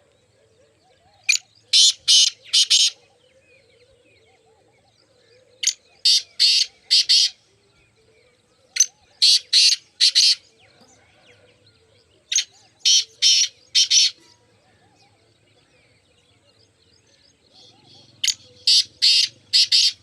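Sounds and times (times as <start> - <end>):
bird harsh grating call: 1.8 - 3.0, 18.2 - 20.0.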